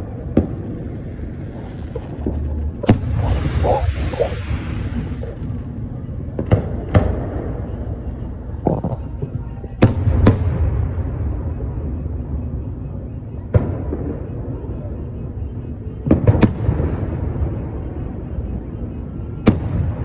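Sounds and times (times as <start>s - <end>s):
fireworks bangs: 0.0s - 12.6s
steady low rumble: 0.2s - 6.6s.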